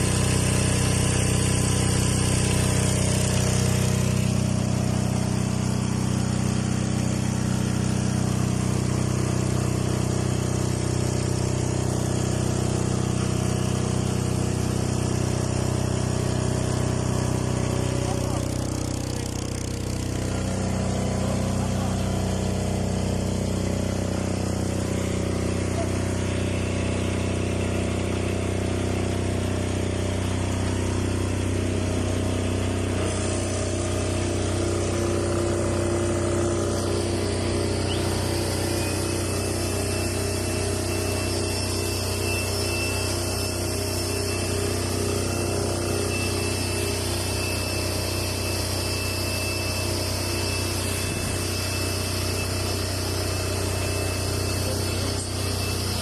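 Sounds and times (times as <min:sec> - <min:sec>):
diesel generator running: 0:00.0 - 0:56.0
thin high whine: 0:16.5 - 0:56.0.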